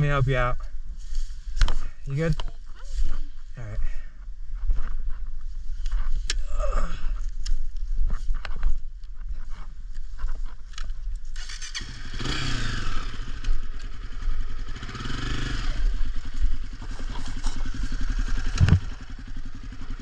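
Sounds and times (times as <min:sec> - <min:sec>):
dirt bike engine revving: 0:11.4 - 0:20.0.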